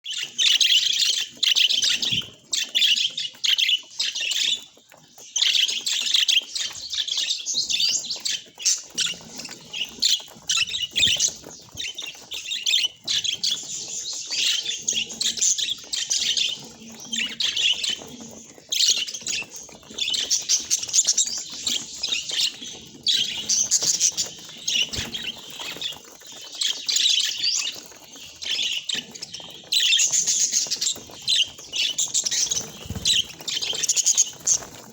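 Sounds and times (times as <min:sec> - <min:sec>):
budgerigars chirping: 0:00.1 - 0:34.8.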